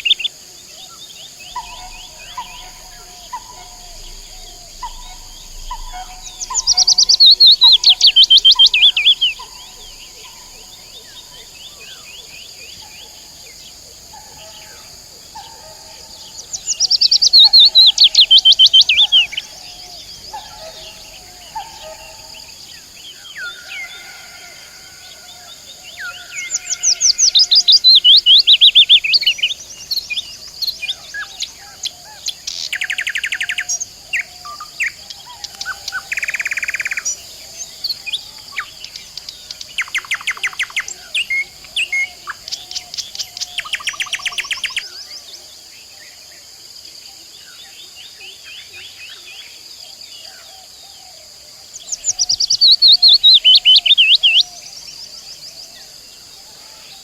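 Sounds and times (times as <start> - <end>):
songbird descending song: 0.0 - 13.8, 16.4 - 24.5, 51.8 - 57.0
birds chirping: 0.0 - 45.3, 51.7 - 57.0
buzzy bird trills: 1.5 - 11.3.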